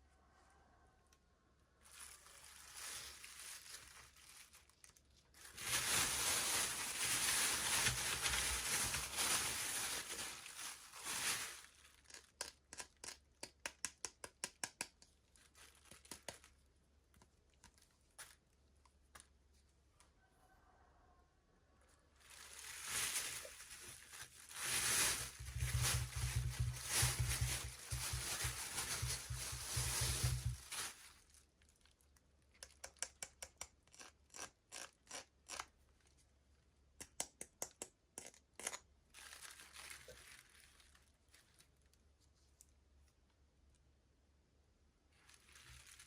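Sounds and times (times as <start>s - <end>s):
packaging crinkling and tearing: 1.8s - 13.3s, 15.2s - 16.6s, 22.2s - 32.7s, 38.6s - 42.0s, 45.2s - 46.0s.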